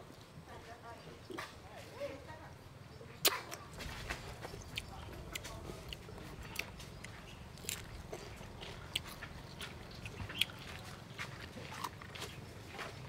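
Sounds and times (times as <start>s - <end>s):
person chewing crispy fish: 3.2s - 13.0s.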